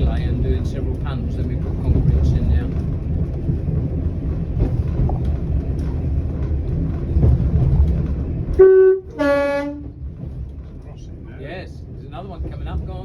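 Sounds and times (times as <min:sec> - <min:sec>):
diesel railcar rumble: 0:00.0 - 0:13.0
train horn high note: 0:08.5 - 0:10.0.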